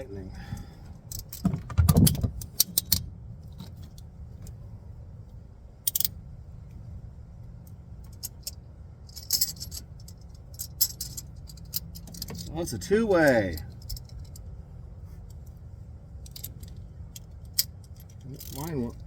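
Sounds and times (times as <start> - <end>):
low steady hum: 0.0 - 19.0
ratchet and wrench clicking: 5.9 - 6.1, 16.2 - 19.0.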